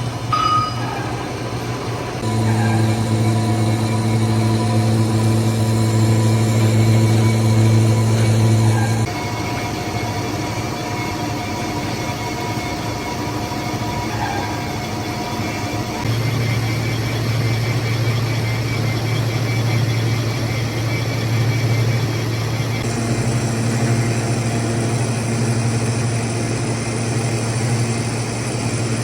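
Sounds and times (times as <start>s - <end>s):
deep hum: 0.0s - 9.2s, 21.4s - 29.0s
lathe running: 0.0s - 29.0s.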